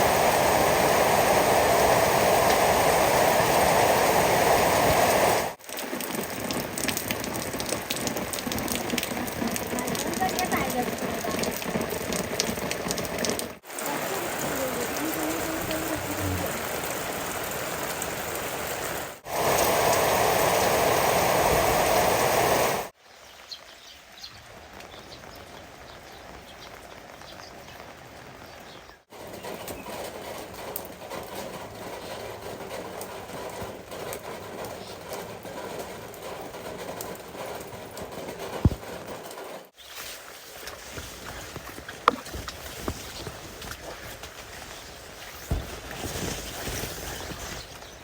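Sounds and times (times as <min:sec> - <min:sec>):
rain falling: 0:00.0 - 0:48.0.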